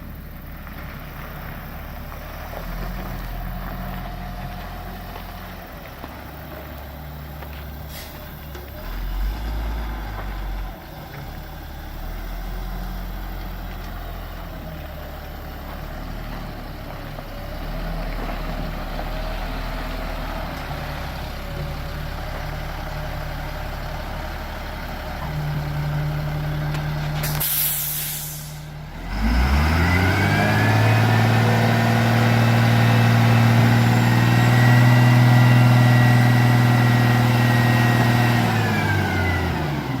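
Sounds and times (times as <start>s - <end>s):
diesel engine idling: 0.0s - 40.0s
air brake hiss: 7.9s - 8.3s, 27.2s - 28.7s.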